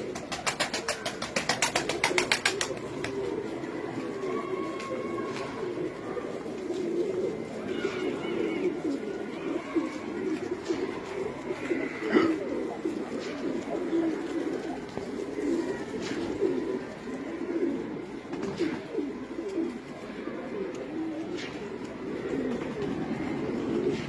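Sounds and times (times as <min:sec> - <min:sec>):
pigeons cooing: 0:00.0 - 0:24.0.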